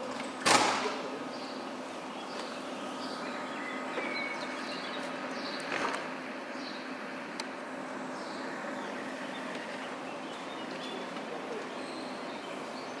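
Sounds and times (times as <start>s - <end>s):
standing train humming: 0.0s - 13.0s
faint bird chirps: 1.3s - 5.7s.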